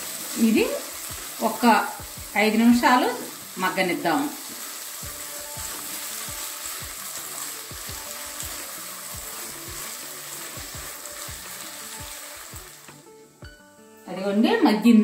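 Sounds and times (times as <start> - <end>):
background music with steady beat: 0.0 - 3.6, 4.4 - 15.0
paste sizzling in hot oil: 0.0 - 14.0
spatula stirring: 4.4 - 13.1.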